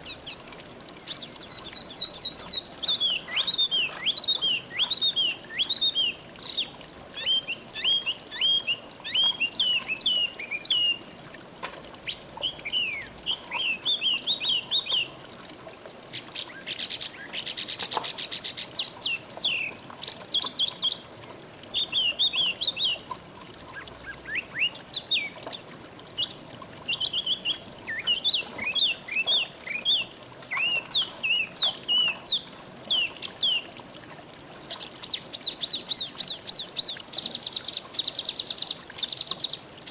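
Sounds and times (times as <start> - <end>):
songbird chirping: 1.0 - 11.0, 12.0 - 15.2, 21.7 - 23.2, 23.8 - 33.7.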